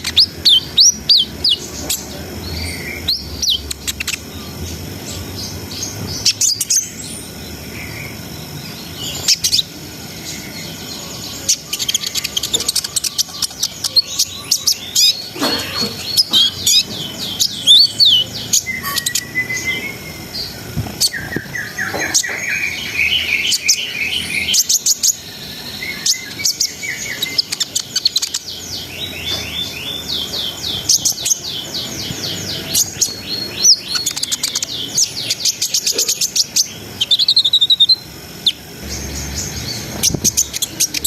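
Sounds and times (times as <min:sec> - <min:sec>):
sunbird twittering song: 0:00.0 - 0:41.0.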